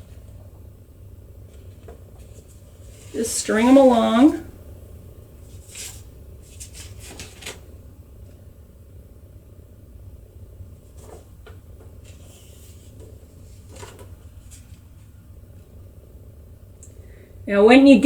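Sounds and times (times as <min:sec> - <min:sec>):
steady low hum: 0:00.0 - 0:18.0
paper rustling and clicking: 0:05.6 - 0:07.7, 0:10.9 - 0:14.8.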